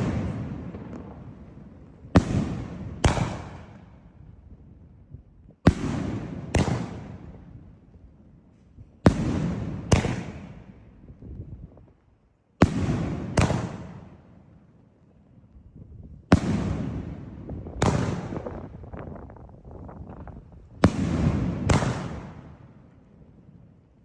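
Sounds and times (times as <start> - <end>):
firework bangs echoing: 0.0 - 4.1, 5.6 - 7.6, 9.0 - 10.8, 12.6 - 14.3, 16.3 - 18.9, 20.8 - 22.9
faint firework crackling: 0.0 - 24.0.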